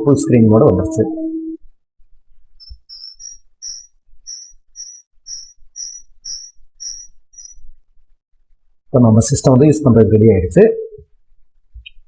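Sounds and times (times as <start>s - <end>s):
short high chirps: 2.6s - 7.7s.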